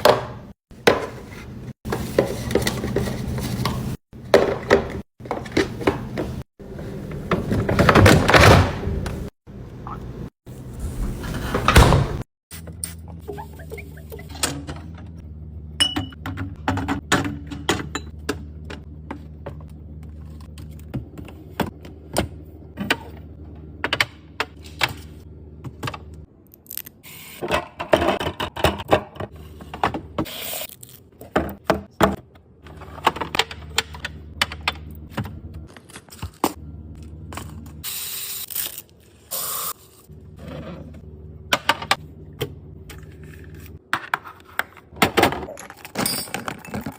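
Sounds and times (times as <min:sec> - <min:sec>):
containers and jars clattering: 0:45.2 - 0:46.9.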